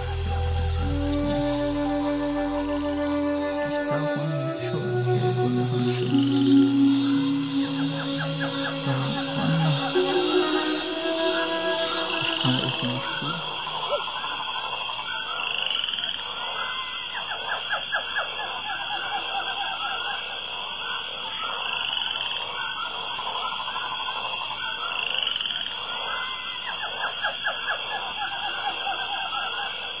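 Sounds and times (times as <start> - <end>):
short rising whistles: 0.0 - 14.2
steady high-pitched tone: 0.0 - 14.8
frogs croaking: 0.0 - 30.0.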